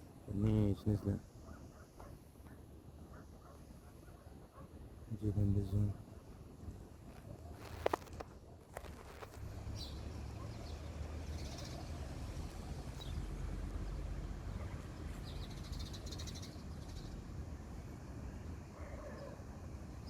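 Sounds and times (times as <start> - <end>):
birds chirping: 9.7 - 13.5, 14.4 - 17.4.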